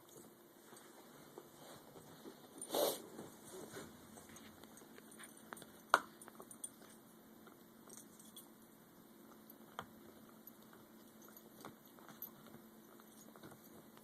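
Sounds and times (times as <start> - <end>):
dogs chewing bone clicks and taps: 4.2 - 8.5, 9.3 - 14.0.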